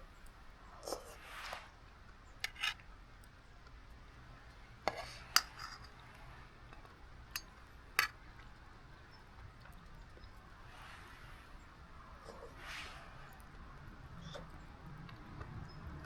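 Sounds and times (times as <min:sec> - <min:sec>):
cookware clinking: 0:04.9 - 0:06.1.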